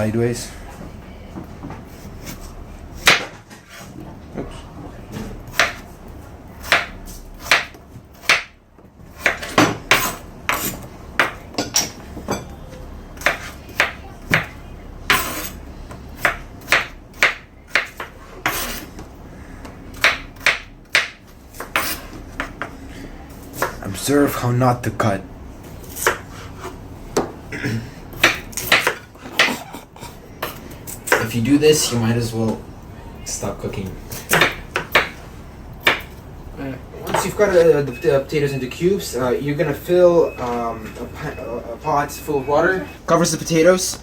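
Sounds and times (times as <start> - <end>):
knife chopping on cutting board: 1.9 - 3.8, 5.5 - 5.8, 6.6 - 8.6, 9.2 - 11.4, 13.2 - 15.6, 16.2 - 18.9, 19.9 - 22.8, 25.9 - 27.3, 28.2 - 29.7, 34.1 - 35.2, 35.8 - 36.2.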